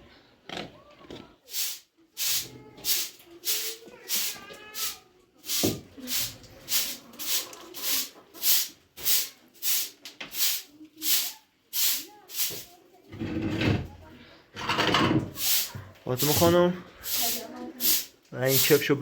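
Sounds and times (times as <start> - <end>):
brush swishing: 1.5 - 12.7, 15.4 - 18.9.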